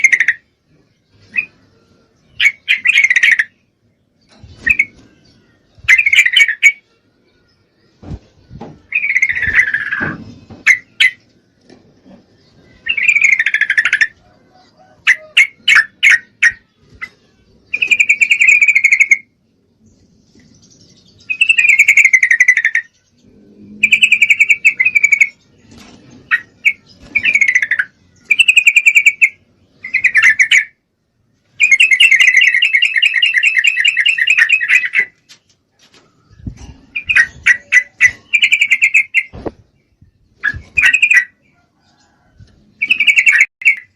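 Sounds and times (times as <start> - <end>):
bird chattering calls: 23.8 - 25.4.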